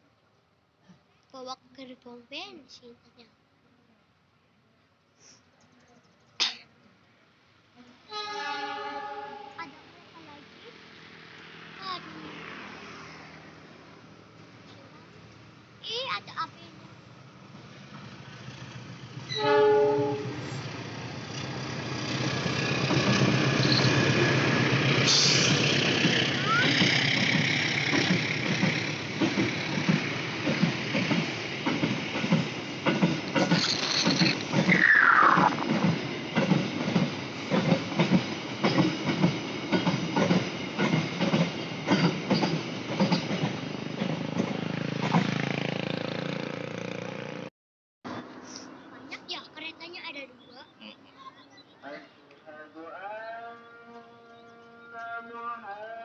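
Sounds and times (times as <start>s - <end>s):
train rumble: 8.0s - 47.4s
locomotive horn blast: 8.1s - 9.6s, 19.3s - 20.6s
train wheel squeal: 23.5s - 24.3s, 33.4s - 35.8s.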